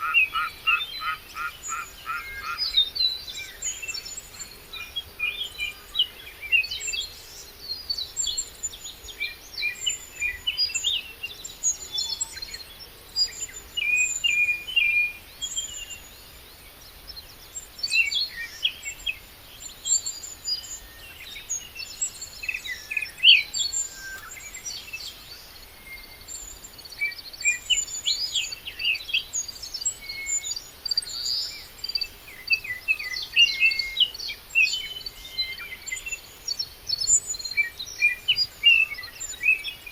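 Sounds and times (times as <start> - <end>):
birds chirping and singing: 17.9 - 39.9.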